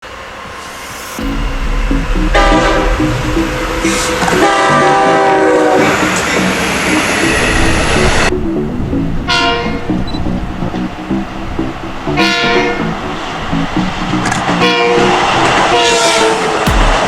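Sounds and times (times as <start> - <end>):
train passing rumble: 0.0 - 17.0
train horn blasts: 1.2 - 7.9, 9.2 - 10.1, 12.1 - 12.9, 14.5 - 16.6.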